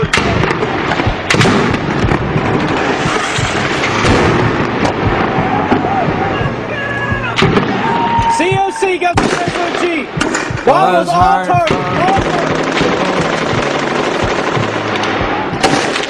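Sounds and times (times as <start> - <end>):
sharp bangs and blasts: 0.0 - 10.8, 11.6 - 16.0
continuous rumbling: 0.0 - 16.0.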